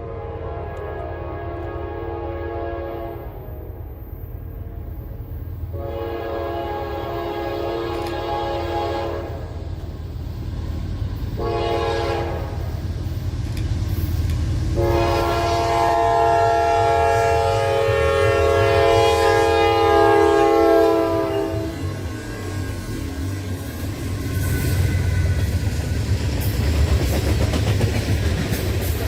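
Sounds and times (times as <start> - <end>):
locomotive air horn blasts: 0.0 - 3.7, 5.7 - 9.6, 11.4 - 12.8, 14.8 - 22.1
low locomotive rumble: 0.0 - 29.0.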